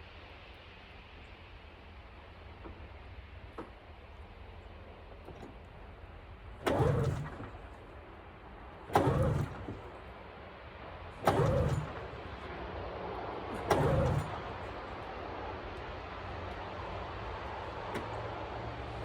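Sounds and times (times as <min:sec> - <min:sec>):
recoil starter pulls: 0:05.1 - 0:15.9, 0:17.4 - 0:19.0
engine turning over: 0:05.2 - 0:19.0.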